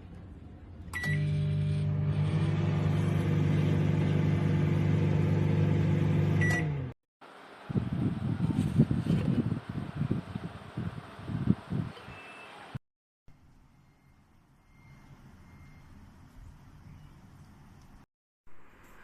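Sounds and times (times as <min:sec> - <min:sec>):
microwave beep: 0:01.0 - 0:06.8
microwave humming: 0:01.0 - 0:07.0.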